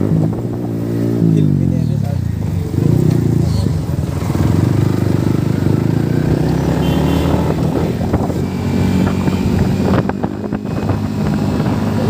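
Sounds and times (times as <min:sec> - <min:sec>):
wind buffeting microphone: 0:00.0 - 0:01.6, 0:02.7 - 0:12.0
motorcycle engine running: 0:00.0 - 0:12.0.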